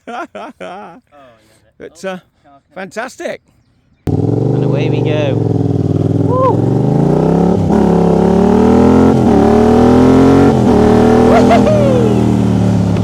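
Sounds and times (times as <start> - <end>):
motorcycle engine accelerating: 4.1 - 13.0.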